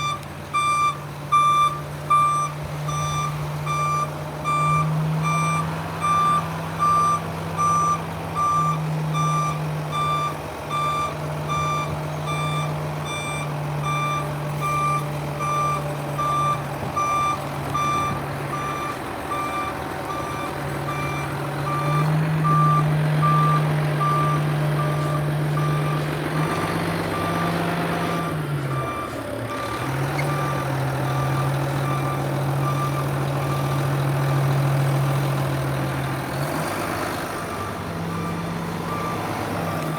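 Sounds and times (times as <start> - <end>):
reverse alarm beeping: 0.0 - 26.0, 37.5 - 39.9
truck engine running: 0.0 - 39.9.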